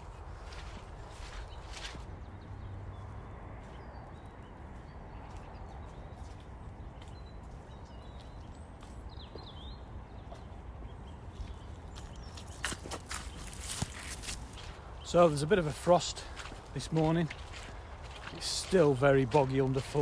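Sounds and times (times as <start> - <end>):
footsteps in wellies on boggy ground: 0.0 - 20.0.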